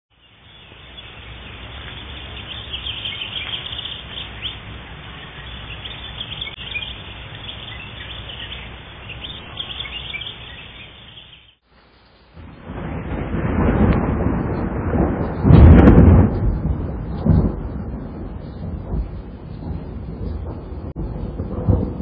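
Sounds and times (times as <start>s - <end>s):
many birds chirping: 0.1s - 11.6s.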